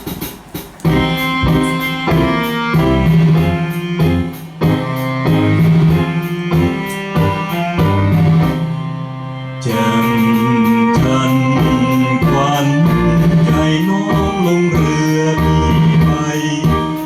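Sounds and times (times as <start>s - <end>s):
instrumental melody: 0.0s - 17.0s
held low bass note: 0.9s - 16.2s.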